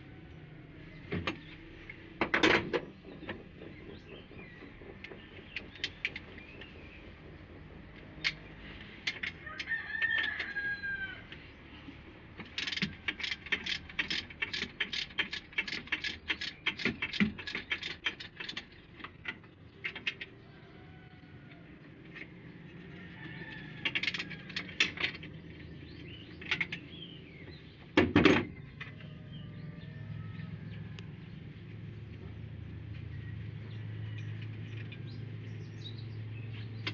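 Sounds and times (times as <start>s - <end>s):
sharp metallic clicks: 1.2s - 10.6s, 12.4s - 20.4s
rooster crowing: 9.4s - 11.3s, 20.4s - 21.8s, 22.8s - 24.8s, 29.0s - 31.3s.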